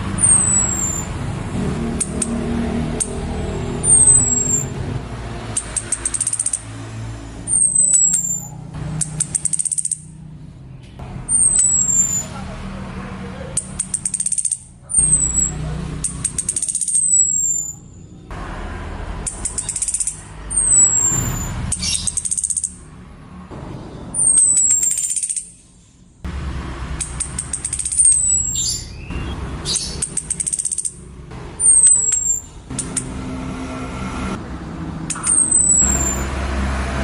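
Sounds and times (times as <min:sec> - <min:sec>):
rapid high ticking: 0:00.1 - 0:10.2, 0:13.6 - 0:17.8, 0:19.1 - 0:22.9, 0:26.3 - 0:28.9, 0:29.6 - 0:33.7.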